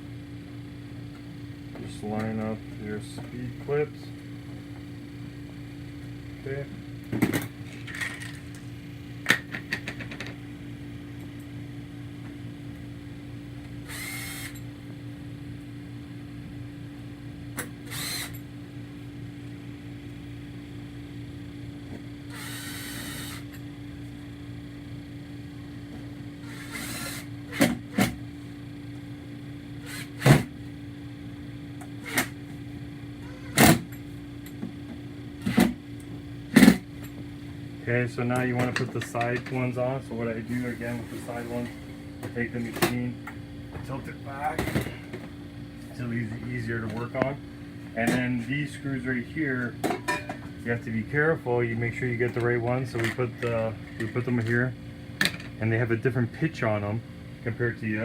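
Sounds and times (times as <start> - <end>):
steady low hum: 0.0 - 58.0
power driver spinning: 13.9 - 14.6, 17.9 - 18.4, 26.4 - 27.3.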